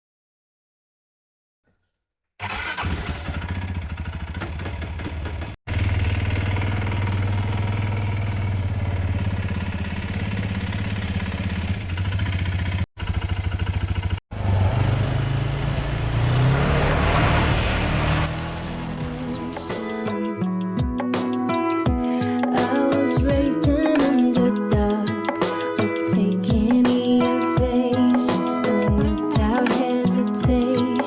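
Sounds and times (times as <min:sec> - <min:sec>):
quad bike engine running: 0:02.4 - 0:17.1, 0:18.1 - 0:20.2.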